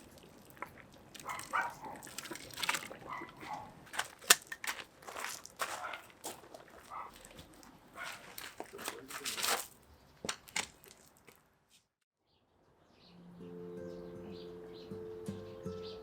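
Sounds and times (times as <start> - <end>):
background music: 13.1 - 16.0.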